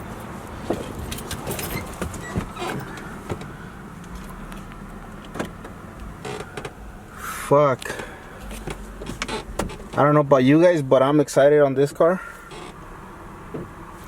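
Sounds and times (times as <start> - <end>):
clicks and knocks of car latches: 5.2 - 6.8, 8.0 - 10.0.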